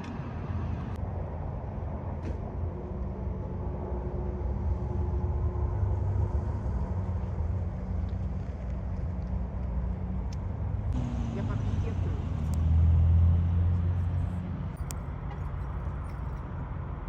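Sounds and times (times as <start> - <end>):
truck engine rumbling: 10.6 - 17.0.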